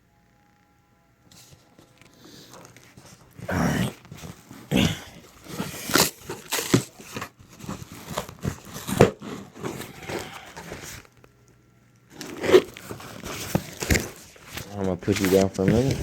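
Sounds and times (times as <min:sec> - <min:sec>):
cardboard box torn and crumpled: 0:03.6 - 0:11.0.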